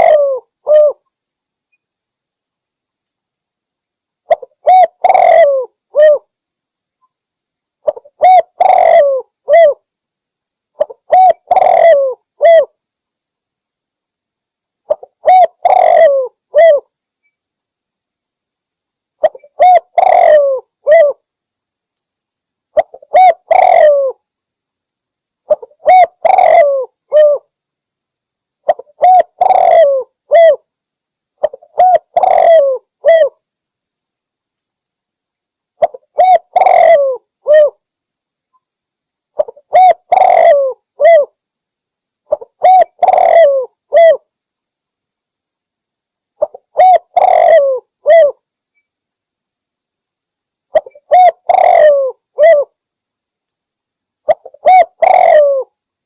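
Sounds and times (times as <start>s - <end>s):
dove cooing: 0.0s - 1.0s, 4.3s - 6.3s, 7.8s - 9.8s, 10.8s - 12.7s, 14.9s - 16.9s, 19.2s - 21.2s, 22.8s - 24.2s, 25.5s - 27.5s, 28.7s - 30.6s, 31.4s - 33.4s, 35.8s - 37.8s, 39.4s - 41.4s, 42.3s - 44.2s, 46.4s - 48.4s, 50.7s - 52.7s, 54.3s - 55.7s.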